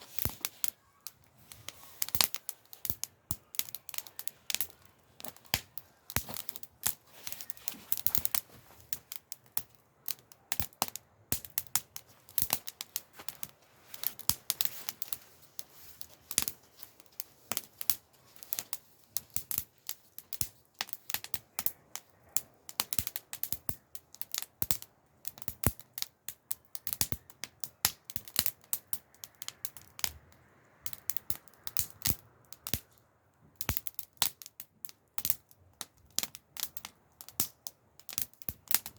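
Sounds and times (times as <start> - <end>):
campfire crackling: 0.0 - 38.9.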